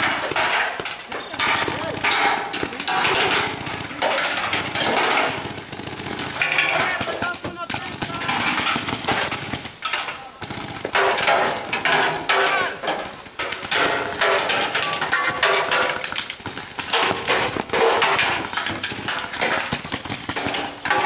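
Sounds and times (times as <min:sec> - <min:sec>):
paintball markers firing: 0:00.0 - 0:21.0
players calling out: 0:01.0 - 0:14.2.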